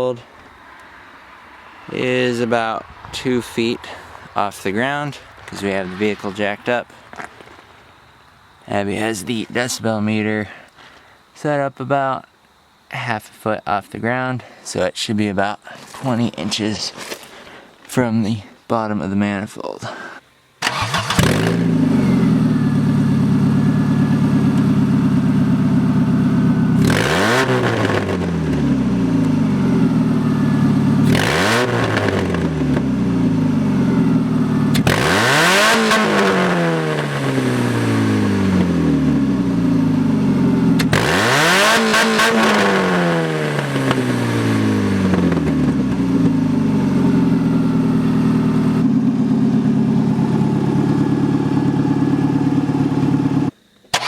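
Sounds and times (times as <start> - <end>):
car engine revving loudly: 20.6 - 48.9.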